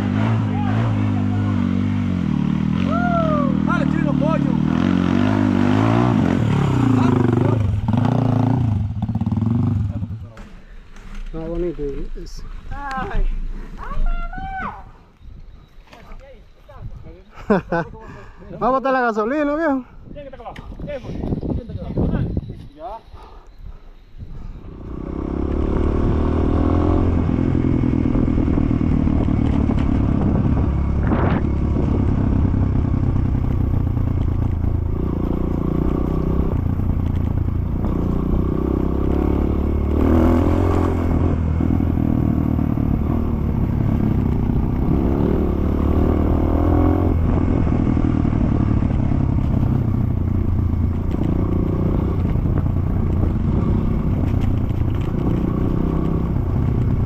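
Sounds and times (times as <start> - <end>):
dirt bike engine revving: 0.0 - 10.2, 24.6 - 57.0.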